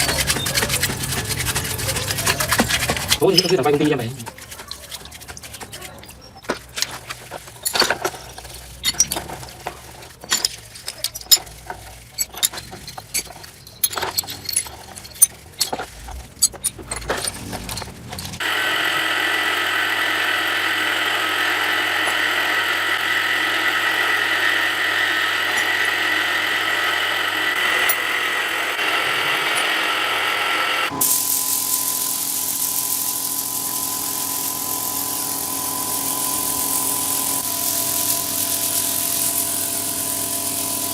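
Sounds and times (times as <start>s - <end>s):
power tool running: 0.0s - 4.5s, 18.4s - 40.9s.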